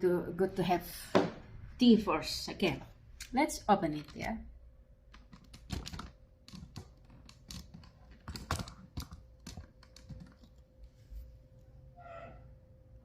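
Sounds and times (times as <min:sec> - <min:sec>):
small hard items clicking: 0:05.1 - 0:10.6.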